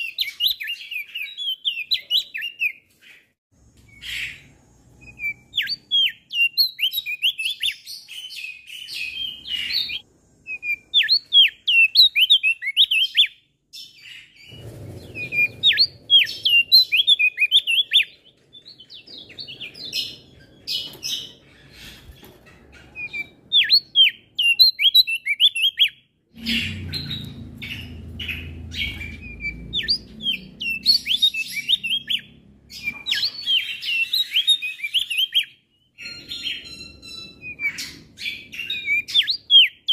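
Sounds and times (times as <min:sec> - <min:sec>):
low rumble: 0:26.3 - 0:31.3.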